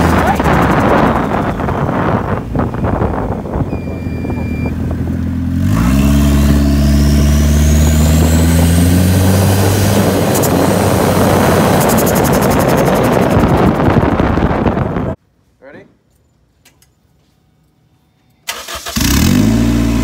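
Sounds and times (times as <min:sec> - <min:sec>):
turbocharged car engine running: 0:00.0 - 0:15.1
high turbo whine: 0:00.0 - 0:15.2.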